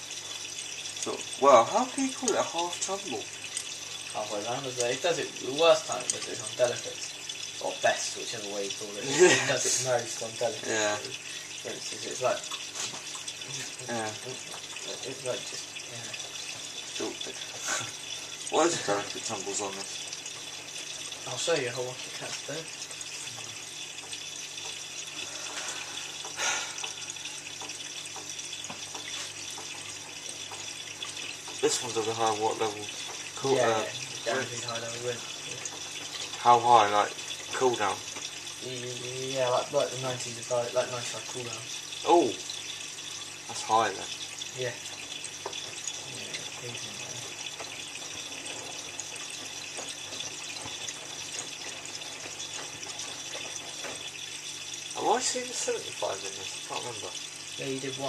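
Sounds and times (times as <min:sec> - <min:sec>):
water hissing in washing machine drum: 0:00.0 - 0:58.0
small ticks: 0:02.0 - 0:07.6, 0:19.8 - 0:33.4.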